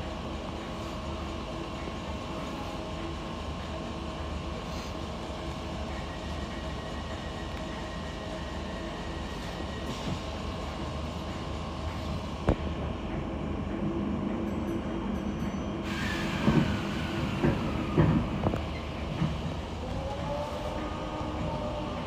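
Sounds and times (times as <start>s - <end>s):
electric train rumble: 0.0s - 22.0s
hiss: 15.8s - 18.3s.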